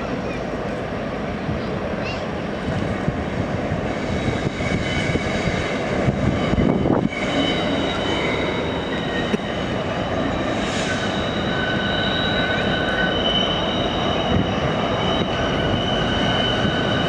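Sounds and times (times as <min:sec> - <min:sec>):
freight train rumbling past: 0:00.0 - 0:17.0
train wheels squealing: 0:03.9 - 0:17.0.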